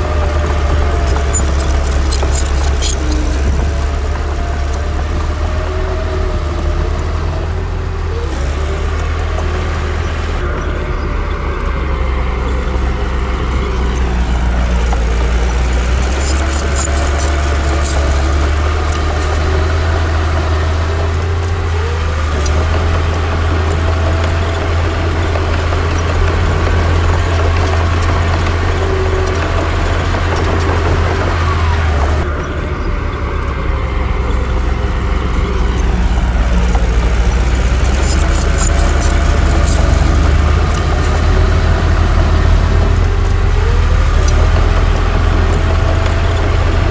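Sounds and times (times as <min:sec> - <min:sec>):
heavy diesel engine rumbling: 0:00.0 - 0:46.9
light clicks: 0:36.5 - 0:46.9.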